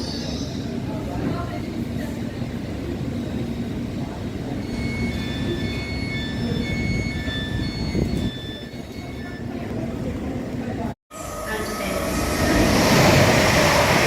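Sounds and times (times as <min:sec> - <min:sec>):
train rumbling past: 0:10.8 - 0:14.0
high-pitched metallic squeals: 0:11.1 - 0:13.3.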